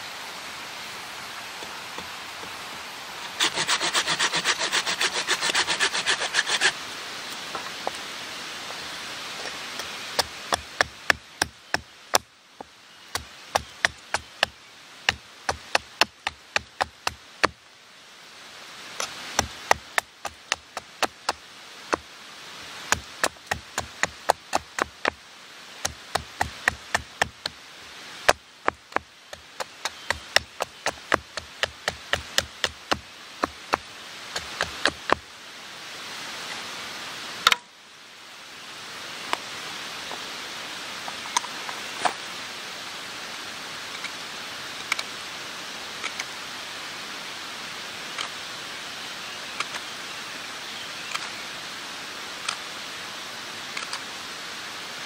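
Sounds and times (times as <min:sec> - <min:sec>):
steady hiss: 0:00.0 - 0:55.0
axe chopping wood: 0:10.2 - 0:12.3, 0:13.1 - 0:14.5, 0:15.1 - 0:17.6, 0:19.0 - 0:22.0, 0:22.9 - 0:25.2, 0:25.8 - 0:27.6, 0:28.3 - 0:35.2.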